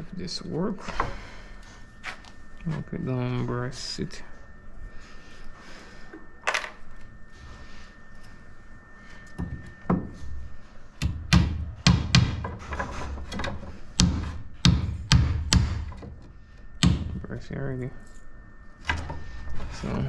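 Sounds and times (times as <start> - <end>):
hammer nailing into wood: 11.0 - 12.6, 14.0 - 16.0, 16.8 - 17.2.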